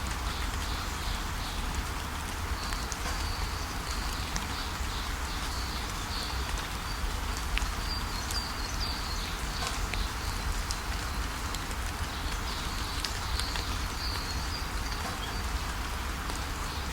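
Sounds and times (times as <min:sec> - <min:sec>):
steady rainfall: 0:00.0 - 0:16.9
small birds chirping: 0:02.4 - 0:15.9.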